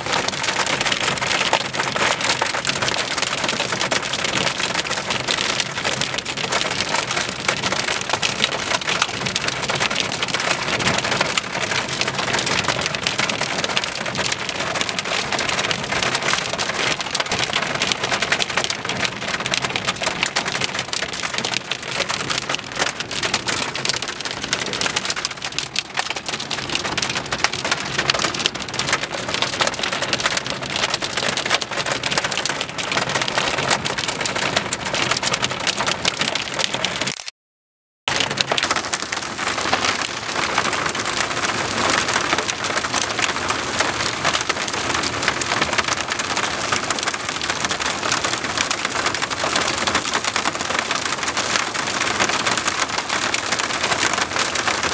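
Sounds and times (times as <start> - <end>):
heavy rain on a hard surface: 0.0 - 37.3, 38.1 - 54.9.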